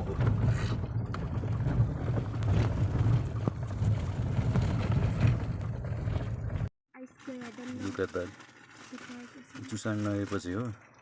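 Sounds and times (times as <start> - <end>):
engine and tyres rumbling: 0.0 - 6.7
knocks and rattles over bumps: 0.0 - 6.7.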